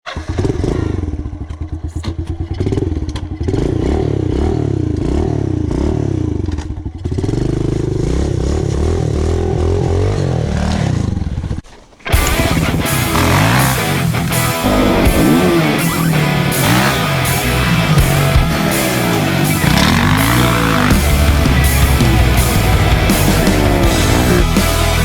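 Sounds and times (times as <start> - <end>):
pit bike engine revving: 0.1 - 25.0
rock music with electric guitar: 12.0 - 25.0.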